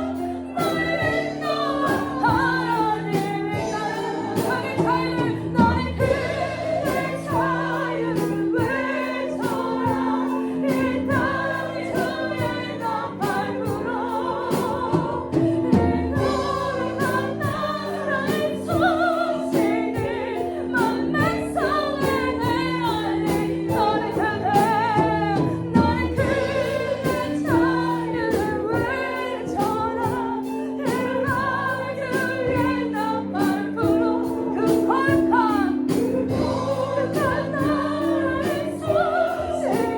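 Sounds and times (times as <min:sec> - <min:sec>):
band with steady drum beat: 0:00.0 - 0:39.9
group singing worship song: 0:00.0 - 0:39.9.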